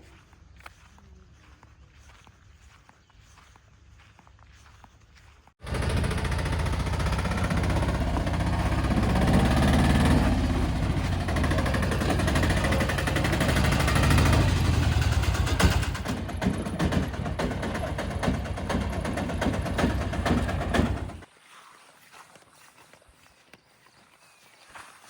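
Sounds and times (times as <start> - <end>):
heavy diesel engine running: 5.6 - 21.2.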